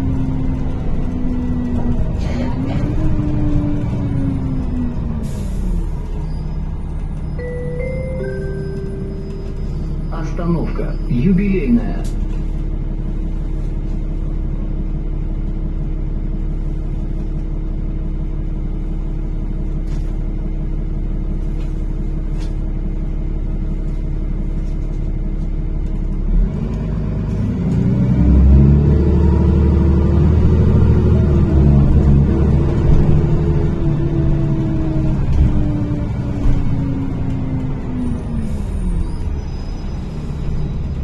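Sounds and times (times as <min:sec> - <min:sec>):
bus engine idling: 0:00.0 - 0:41.0
bus engine pulling away: 0:00.0 - 0:41.0.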